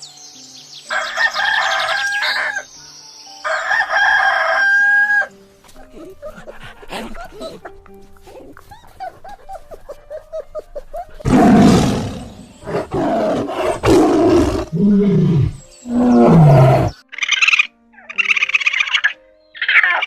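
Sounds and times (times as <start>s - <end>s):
lion roaring: 11.0s - 17.0s.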